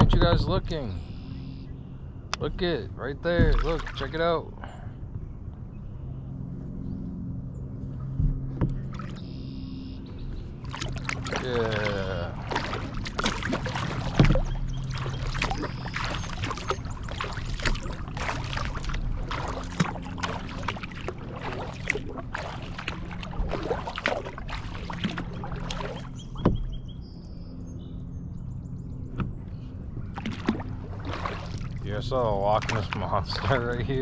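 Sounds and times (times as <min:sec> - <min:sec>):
paddle splashing in water: 0:03.4 - 0:04.2, 0:08.7 - 0:09.4, 0:10.6 - 0:26.8, 0:30.1 - 0:33.9
water dripping off paddle: 0:10.7 - 0:26.7.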